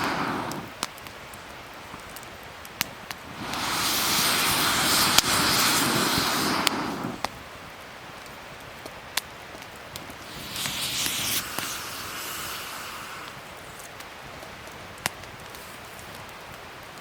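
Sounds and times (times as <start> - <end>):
wood fire crackling: 0.0 - 17.0
loud rushing whoosh: 3.3 - 7.3, 10.2 - 13.6.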